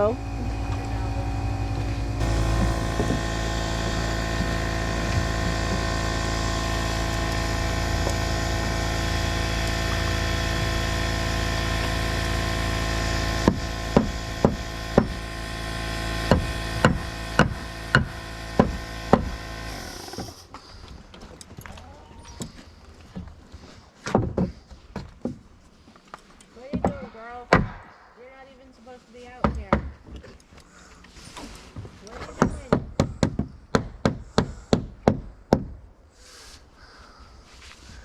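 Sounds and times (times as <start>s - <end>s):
machine humming: 0.0s - 20.5s
nails driven into lumber: 2.2s - 20.4s, 26.7s - 28.0s, 32.2s - 35.9s.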